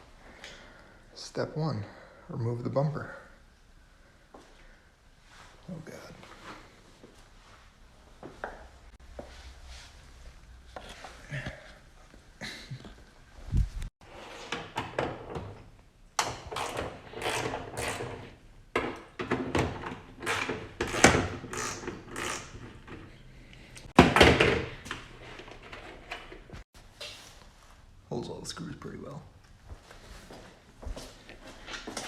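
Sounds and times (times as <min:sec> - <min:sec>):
hand tools knocking and scraping: 0:16.2 - 0:23.2.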